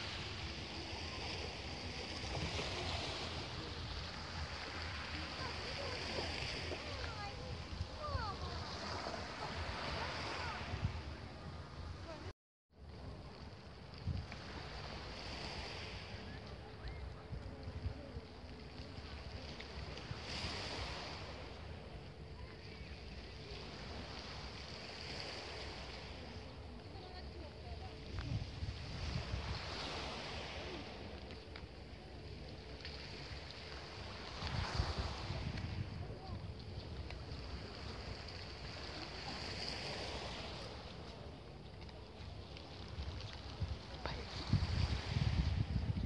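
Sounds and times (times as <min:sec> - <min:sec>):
sea water washing: 0:00.0 - 0:46.0
waves breaking on shore: 0:00.0 - 0:46.0
wind rumbling on microphone: 0:00.0 - 0:46.0.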